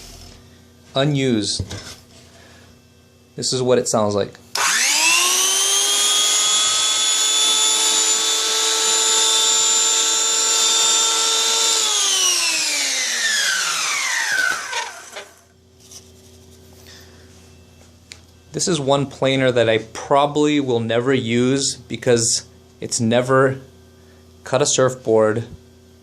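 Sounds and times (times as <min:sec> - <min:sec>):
electric hand planer whine: 0:04.6 - 0:15.5.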